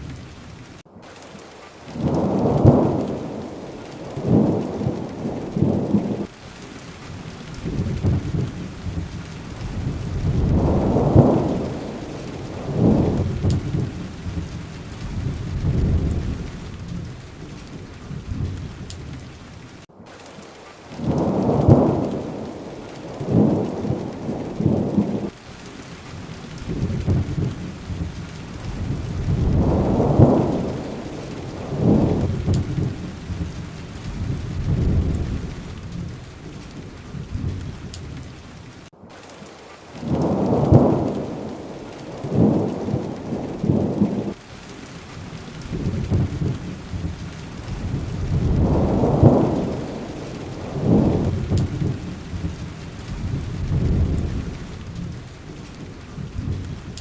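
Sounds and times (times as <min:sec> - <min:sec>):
thunder rolling: 0:00.0 - 0:06.3, 0:07.1 - 0:19.8, 0:20.9 - 0:25.4, 0:26.2 - 0:38.8, 0:40.0 - 0:44.5, 0:45.1 - 0:57.0
heavy rain: 0:00.0 - 0:57.0.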